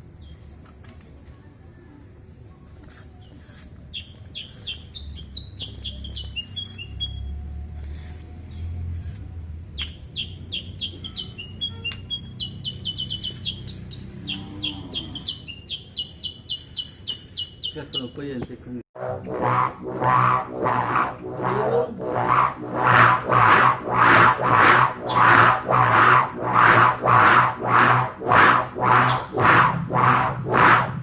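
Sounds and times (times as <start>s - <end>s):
bird chirping: 3.9s - 7.5s, 9.7s - 18.3s, 19.2s - 29.6s
low rumble: 19.0s - 31.0s.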